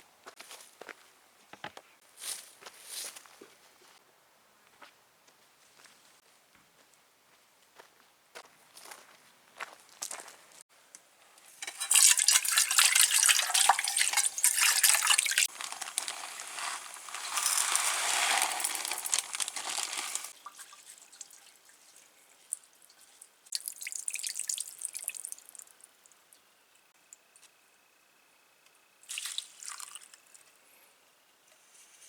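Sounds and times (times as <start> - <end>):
water running and splashing: 11.6 - 25.3.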